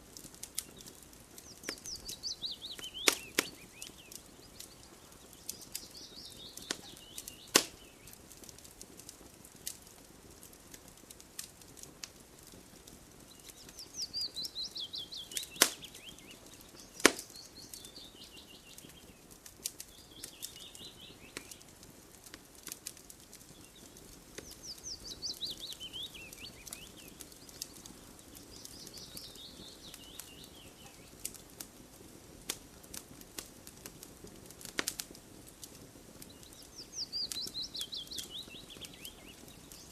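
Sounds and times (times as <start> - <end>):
campfire crackling and popping: 0.0 - 39.9
bird singing: 0.6 - 8.2, 13.3 - 19.2, 19.8 - 21.7, 23.5 - 31.2, 36.2 - 39.9.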